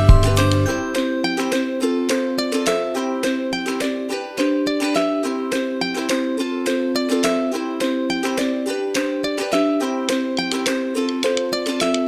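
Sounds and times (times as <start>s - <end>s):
deep thumping beat: 0.0s - 0.6s
plucked string melody: 0.0s - 12.0s.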